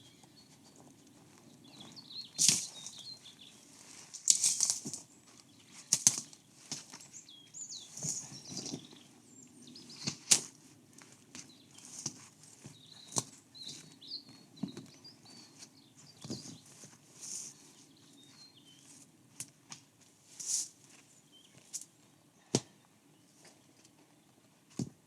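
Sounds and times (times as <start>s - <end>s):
small birds chirping faintly: 0.0s - 25.0s
sharp rustling or scraping: 2.3s - 7.2s, 7.8s - 9.0s, 16.2s - 17.8s, 20.2s - 21.8s.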